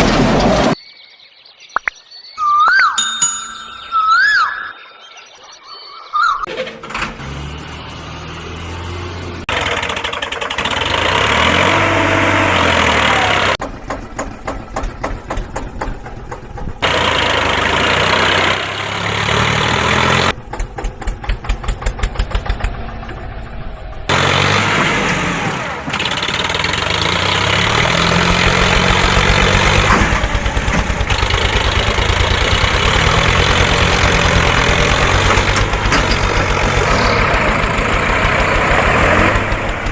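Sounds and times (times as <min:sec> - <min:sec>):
engine revving: 0:06.8 - 0:15.8, 0:16.5 - 0:39.9
engine idling chug: 0:09.5 - 0:11.8, 0:13.0 - 0:39.9.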